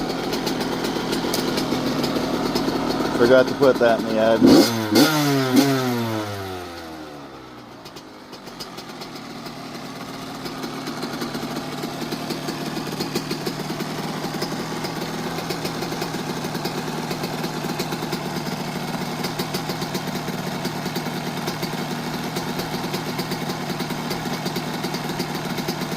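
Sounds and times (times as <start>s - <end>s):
two-stroke engine idling: 0.0s - 25.9s.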